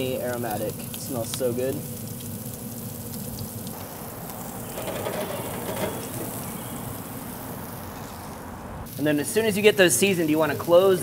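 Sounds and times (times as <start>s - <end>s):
patties sizzling in oil: 0.0s - 11.0s.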